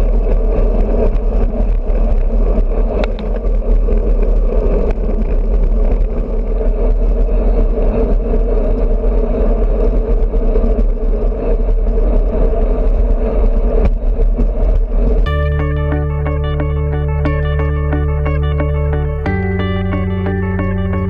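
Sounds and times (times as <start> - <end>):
wind noise on microphone: 0.0 - 16.5
tyre and road noise: 0.0 - 21.0.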